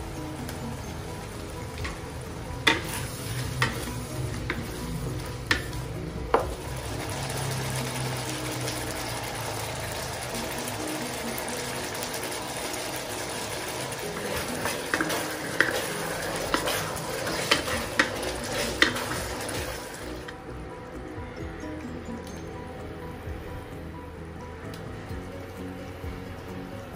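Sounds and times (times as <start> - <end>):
food sizzling in a wok: 0.0 - 20.3.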